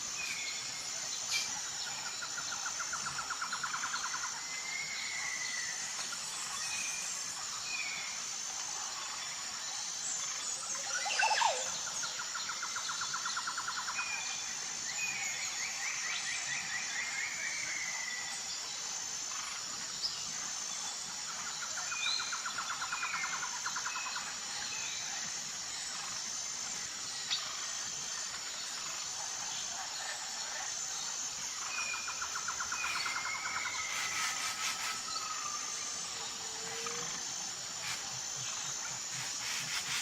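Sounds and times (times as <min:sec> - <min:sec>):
high pulsing insect chorus: 0:00.0 - 0:40.0
forest birds calling: 0:10.8 - 0:12.6, 0:31.5 - 0:40.0.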